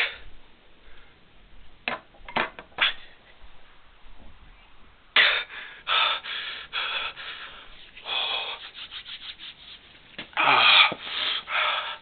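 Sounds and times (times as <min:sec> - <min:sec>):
person breathing in hissy gasps: 0:05.2 - 0:09.2, 0:10.4 - 0:12.0.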